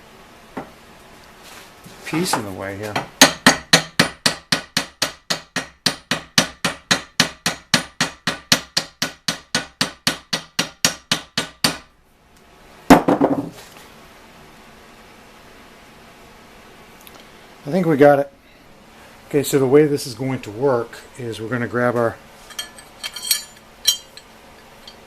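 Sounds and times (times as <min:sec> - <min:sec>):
hammer striking metal pin: 0:22.5 - 0:25.0.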